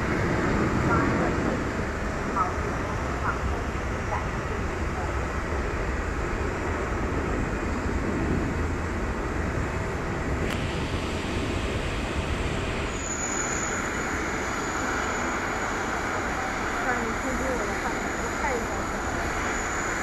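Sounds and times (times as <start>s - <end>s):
jet aircraft engine: 0.0s - 20.0s
high whine: 7.5s - 20.0s.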